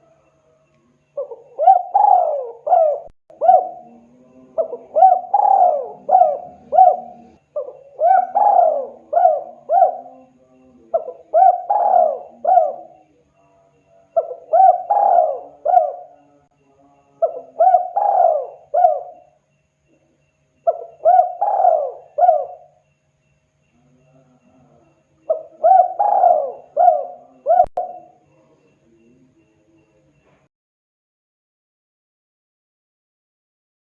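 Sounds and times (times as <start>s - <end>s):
dove cooing: 1.2s - 13.2s, 14.1s - 16.4s, 17.2s - 19.4s, 20.6s - 22.8s, 24.0s - 28.5s.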